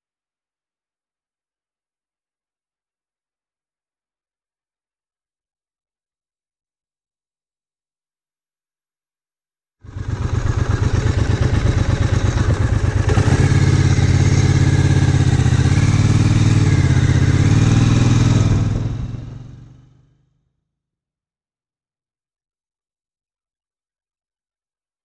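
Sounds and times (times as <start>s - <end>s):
motorcycle engine pulsing exhaust: 9.9s - 20.0s.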